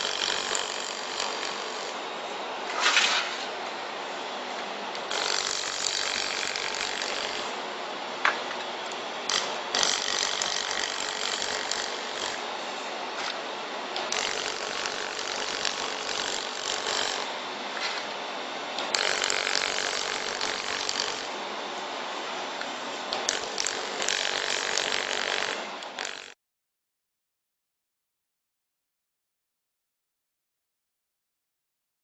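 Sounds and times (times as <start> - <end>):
laser welder crackling sizzle: 18.8 - 21.4.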